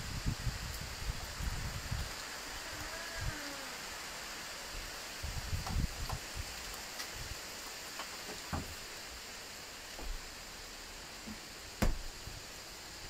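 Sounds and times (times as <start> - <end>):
heavy rain: 0.0 - 13.0
thumps on microphone: 11.8 - 12.1.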